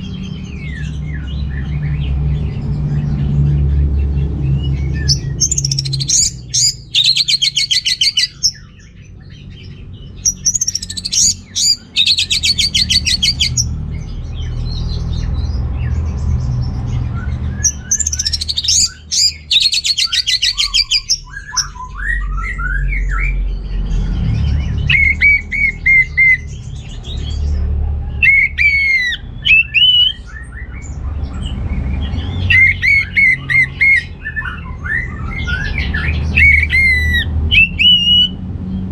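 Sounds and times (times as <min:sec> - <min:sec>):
thrush singing: 0:04.2 - 0:08.7, 0:10.3 - 0:13.7, 0:17.6 - 0:21.3, 0:28.2 - 0:30.7, 0:31.5 - 0:38.4.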